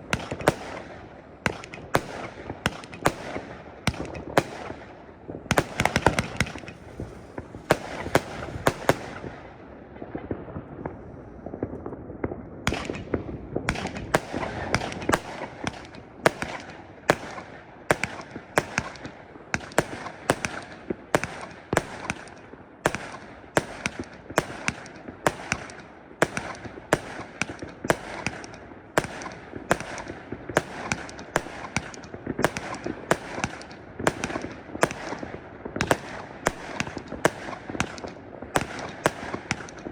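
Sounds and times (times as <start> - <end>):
fireworks bangs and cracks: 0.0 - 39.9.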